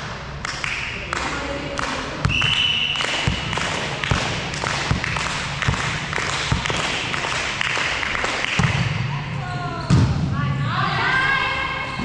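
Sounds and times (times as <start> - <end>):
referee's whistle: 2.3 - 3.4.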